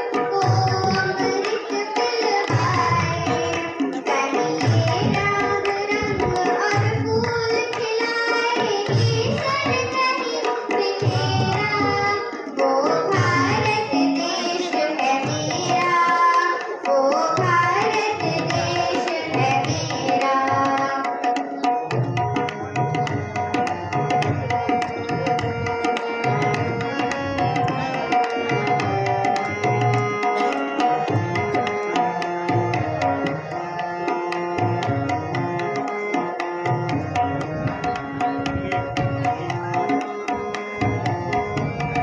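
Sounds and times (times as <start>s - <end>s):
person singing a patriotic song: 0.0s - 21.1s
deep tabla strokes: 0.1s - 10.0s, 21.8s - 42.0s.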